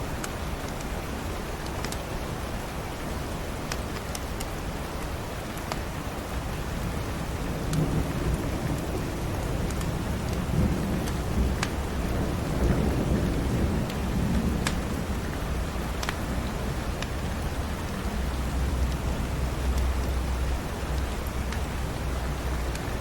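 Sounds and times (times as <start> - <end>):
steady rain: 0.0 - 23.0
wood fire crackling: 3.5 - 23.0
thunder rumbling: 7.2 - 23.0.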